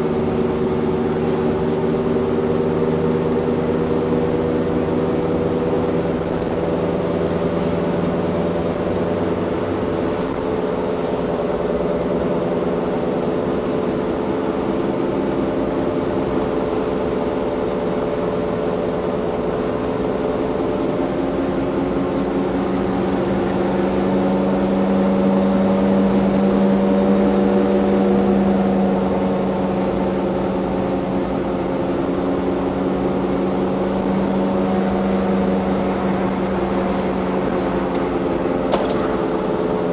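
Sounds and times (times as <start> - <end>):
car engine droning hum: 0.0 - 39.9.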